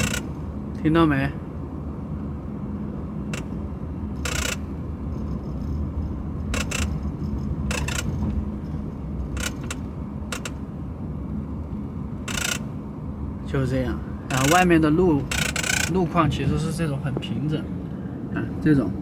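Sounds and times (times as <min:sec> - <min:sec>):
seat clicking and creaking: 0:00.0 - 0:00.5, 0:03.4 - 0:03.6, 0:04.2 - 0:04.8, 0:06.6 - 0:08.5, 0:09.2 - 0:10.7, 0:12.3 - 0:12.8, 0:14.3 - 0:16.2
low road rumble: 0:00.0 - 0:18.3.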